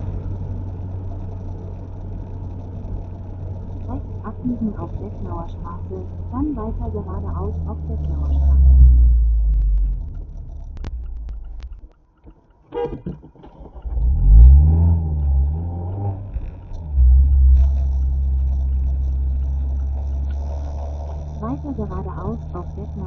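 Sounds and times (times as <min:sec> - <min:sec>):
car engine revving: 0:00.0 - 0:12.0, 0:12.7 - 0:23.0
click: 0:07.9 - 0:20.4.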